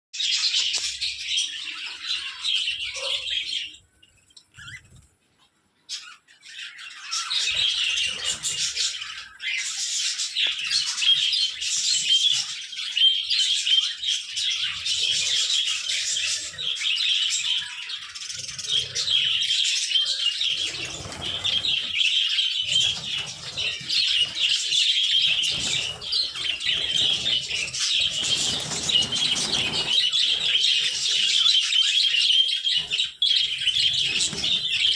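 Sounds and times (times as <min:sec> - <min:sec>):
budgerigars chattering and warbling: 0:00.2 - 0:03.8, 0:05.9 - 0:34.9
low rustling: 0:20.6 - 0:22.0, 0:22.7 - 0:31.6.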